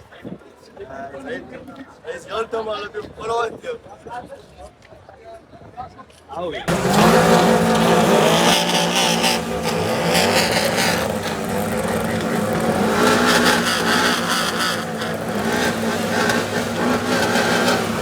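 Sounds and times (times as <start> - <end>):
car engine running: 6.7 - 18.0.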